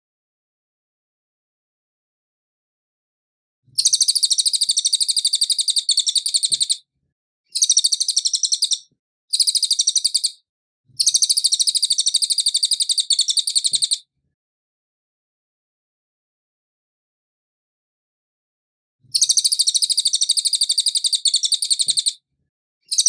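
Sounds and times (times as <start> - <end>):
songbird chattering song: 3.8 - 6.8, 7.5 - 10.4, 11.0 - 14.0, 19.1 - 22.2.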